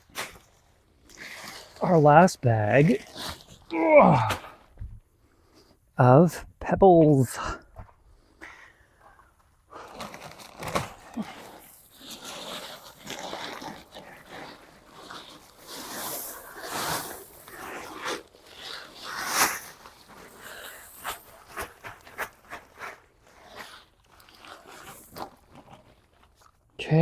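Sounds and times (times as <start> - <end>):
plastic bag rustling: 9.7 - 26.6
pebbles crunching and spilling: 9.8 - 26.5.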